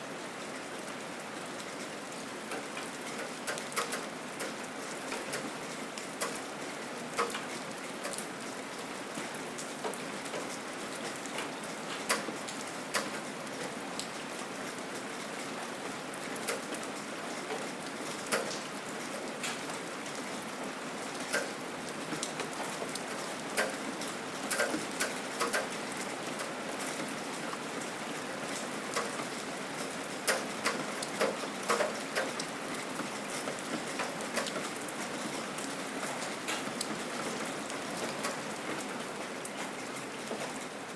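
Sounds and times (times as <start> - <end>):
gentle rain falling: 0.0 - 40.9
raindrops hitting surfaces: 0.0 - 40.9.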